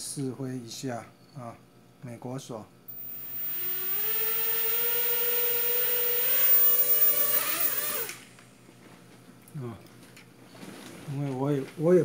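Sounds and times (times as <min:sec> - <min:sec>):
toy quadcopter motors whining: 0:02.9 - 0:08.2.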